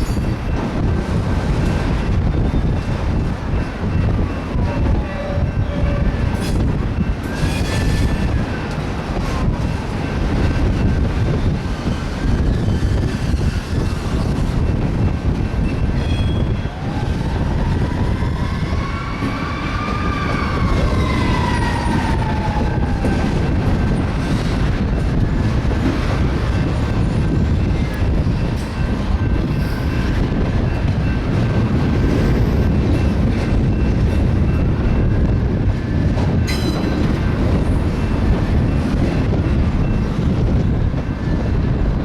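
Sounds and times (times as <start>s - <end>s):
freight train wheels rumbling: 0.0s - 42.0s
metallic squeal: 3.9s - 8.8s, 15.6s - 16.7s.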